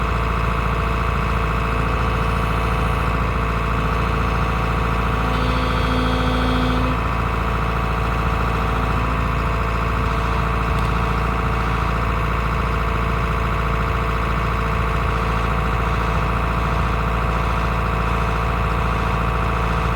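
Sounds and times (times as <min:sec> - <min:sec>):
excavator engine and hydraulics whine: 0:00.0 - 0:19.9
higher tone: 0:04.2 - 0:10.3.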